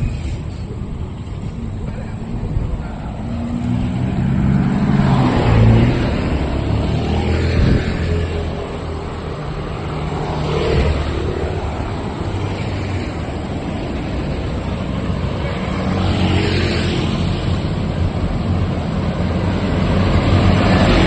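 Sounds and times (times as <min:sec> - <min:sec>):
vehicles passing on street: 0:00.0 - 0:21.0.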